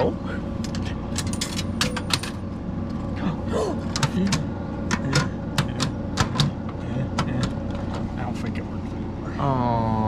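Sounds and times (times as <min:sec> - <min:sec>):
electrical hum: 0:00.0 - 0:10.0
vending machine clicking and clattering: 0:00.7 - 0:02.4, 0:03.9 - 0:08.0.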